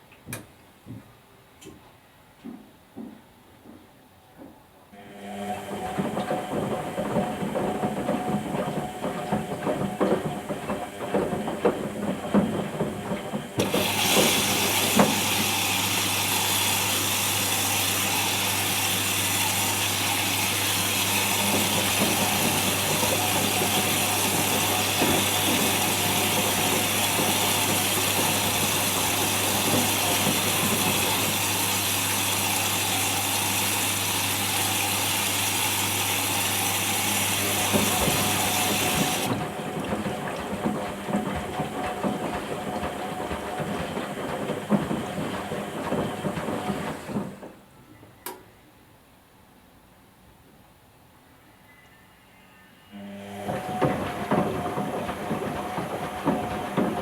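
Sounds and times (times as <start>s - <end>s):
washing machine spin hiss: 5.0s - 47.8s, 52.8s - 57.0s
washing machine drum knocking: 5.6s - 16.4s, 20.8s - 32.9s, 37.1s - 47.6s, 53.4s - 57.0s.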